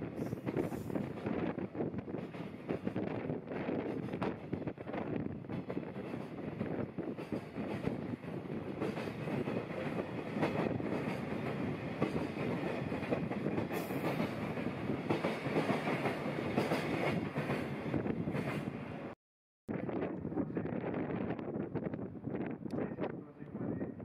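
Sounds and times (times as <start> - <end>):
train wheels clacking over rail joints: 5.5 - 17.7.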